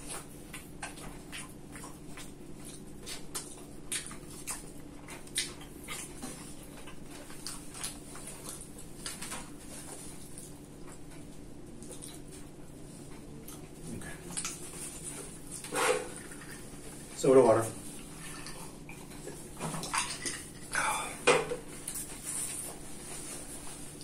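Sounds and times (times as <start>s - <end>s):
chewing crispy food: 0.0s - 21.0s
faint steady hum: 0.0s - 24.0s
wet mouth clicks: 2.7s - 6.1s.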